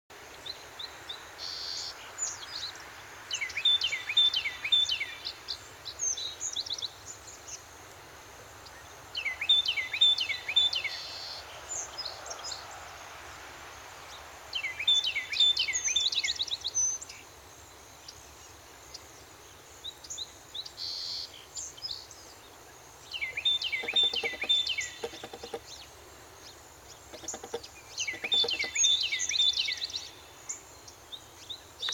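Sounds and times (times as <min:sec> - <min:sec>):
outdoor background noise: 0:00.1 - 0:31.9
songbird singing: 0:00.3 - 0:07.7, 0:08.6 - 0:12.6, 0:14.1 - 0:17.4, 0:18.0 - 0:31.9
faint bird calls: 0:23.2 - 0:25.8, 0:26.9 - 0:30.2.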